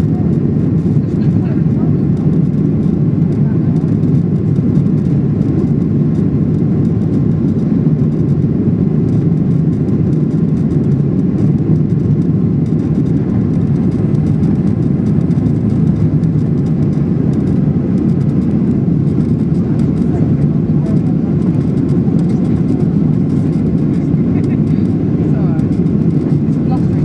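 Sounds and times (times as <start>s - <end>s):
airliner cabin drone: 0.0s - 27.0s.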